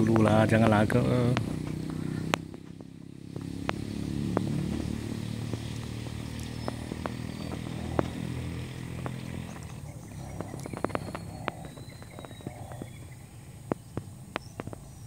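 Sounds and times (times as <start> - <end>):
small engine running: 0.0 - 13.0
sharp clicks: 9.0 - 13.0.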